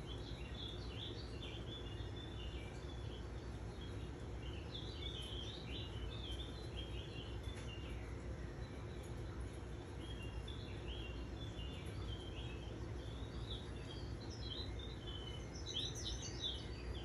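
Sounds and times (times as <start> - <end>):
low background noise: 0.0 - 17.0
songbird twittering: 9.9 - 17.0.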